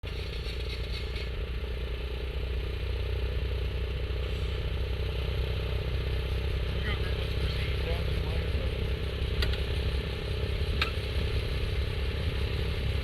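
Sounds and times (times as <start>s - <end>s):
small engine puttering: 0.0s - 1.6s.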